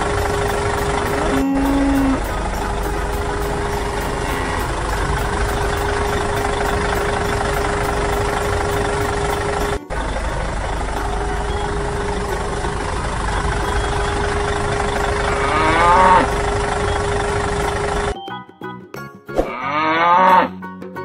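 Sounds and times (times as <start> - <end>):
tractor engine idling: 0.0 - 18.2
cow mooing: 1.1 - 2.4, 3.8 - 5.1, 15.2 - 16.4, 19.5 - 20.5.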